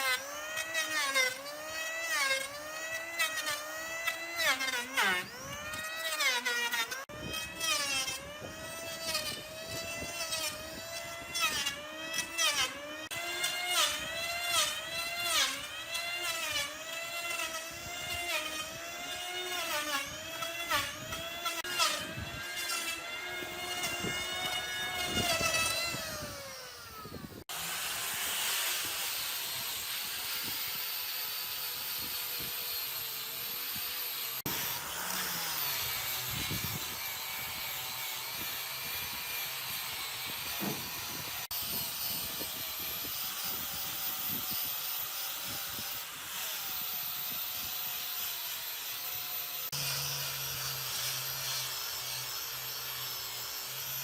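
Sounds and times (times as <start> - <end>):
power tool motor whine: 0.0 - 54.0.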